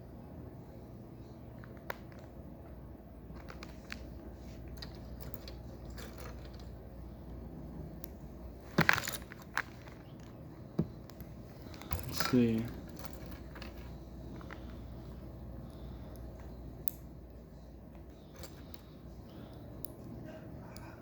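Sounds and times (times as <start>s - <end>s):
clatter of plastic pieces: 4.7s - 6.8s.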